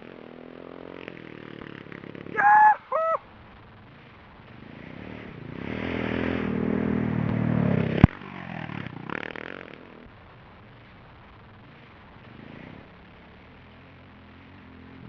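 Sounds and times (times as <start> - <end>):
motorcycle engine revving: 0.0 - 2.6, 3.2 - 10.0.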